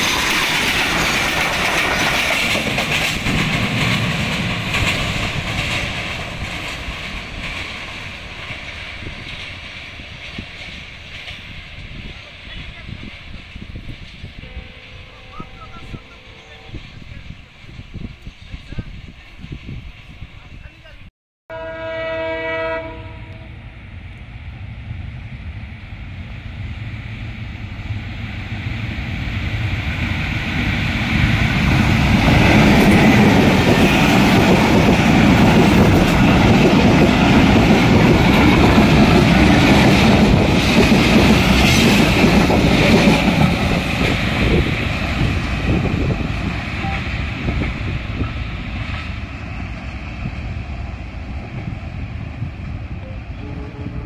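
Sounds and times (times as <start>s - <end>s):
train coaches rolling on rails: 0.0s - 21.1s, 25.4s - 54.0s
diesel locomotive rumble: 0.0s - 54.0s.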